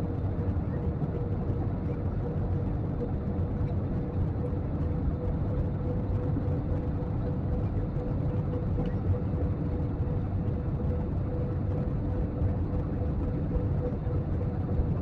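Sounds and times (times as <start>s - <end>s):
constant hum: 0.0s - 15.0s
jet airliner cabin rumble: 0.0s - 15.0s.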